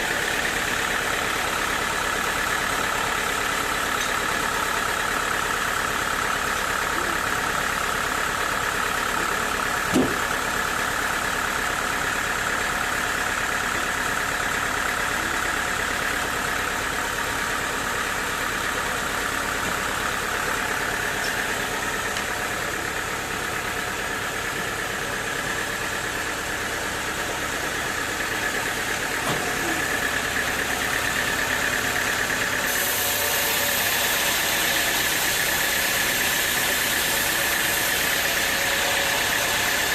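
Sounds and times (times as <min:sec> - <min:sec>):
sawmill machinery drone: 0:00.0 - 0:39.9
sharp knock: 0:09.9 - 0:10.2.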